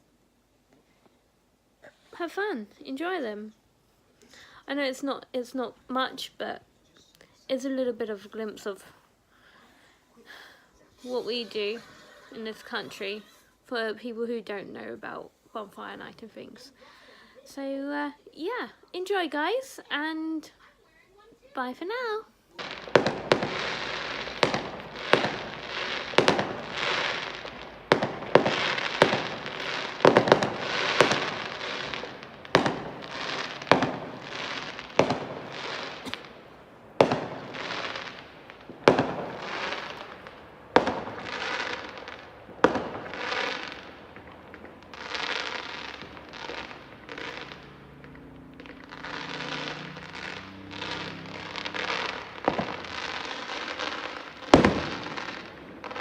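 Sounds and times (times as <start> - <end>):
firework bangs: 22.6 - 56.0
firework hissing trails: 22.6 - 56.0.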